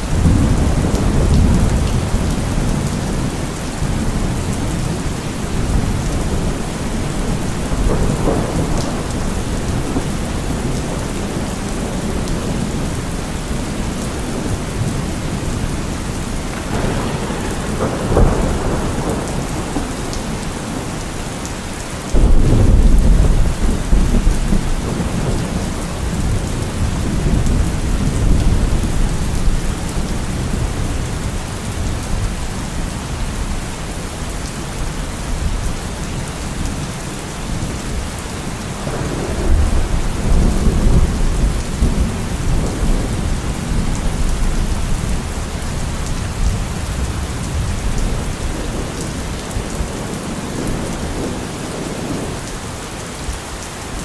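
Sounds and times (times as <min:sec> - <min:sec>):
thunder rumbling: 0:00.0 - 0:33.6, 0:37.5 - 0:52.5
heavy rain: 0:00.0 - 0:54.0.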